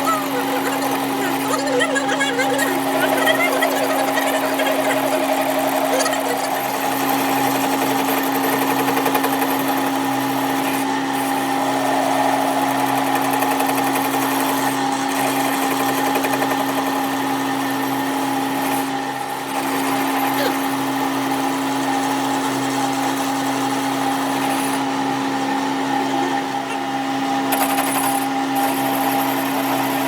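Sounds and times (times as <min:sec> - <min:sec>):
power tool humming: 0:00.0 - 0:30.0.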